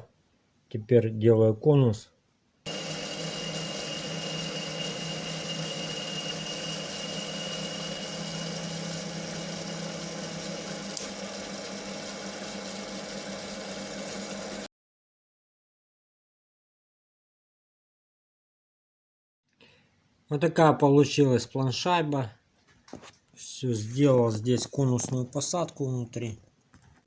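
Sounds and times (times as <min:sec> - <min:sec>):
high cutting tone: 0:02.7 - 0:14.7
lathe running: 0:02.7 - 0:14.7.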